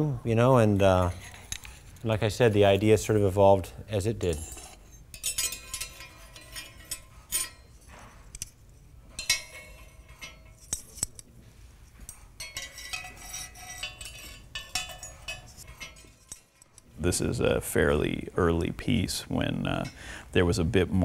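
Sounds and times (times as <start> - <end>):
glass objects clinking: 9.1 - 11.1, 12.2 - 16.7.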